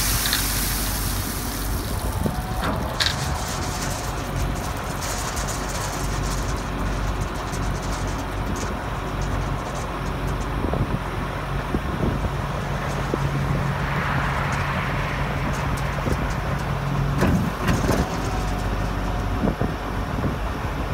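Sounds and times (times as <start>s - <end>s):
rushing hiss: 0.0s - 2.6s
knocks and clatter: 0.0s - 10.9s, 12.6s - 19.2s
tractor and combine running: 0.0s - 20.9s.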